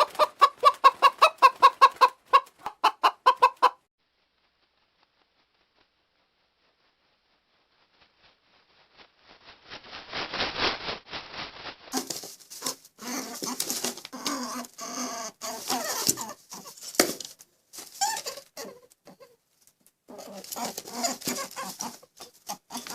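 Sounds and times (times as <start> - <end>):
animals scuffling: 11.9 - 14.7, 15.4 - 18.4, 20.1 - 22.9.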